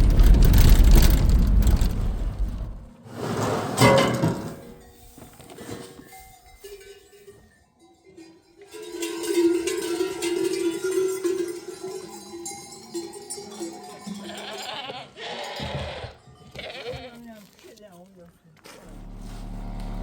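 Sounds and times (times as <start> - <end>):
livestock bells ringing: 5.9 - 16.7
sheep or goat bleating: 14.0 - 17.6.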